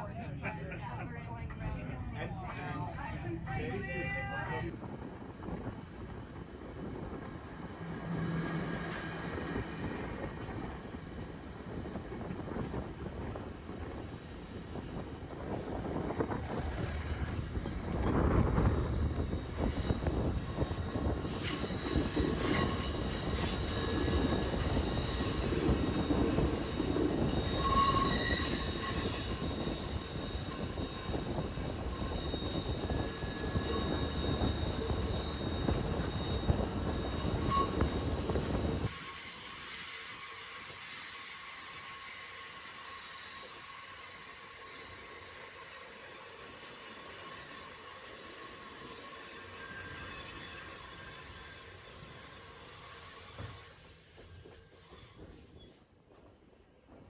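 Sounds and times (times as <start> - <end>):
train cars rumbling: 0.0 - 39.1
wheels squealing on rails: 6.7 - 56.2.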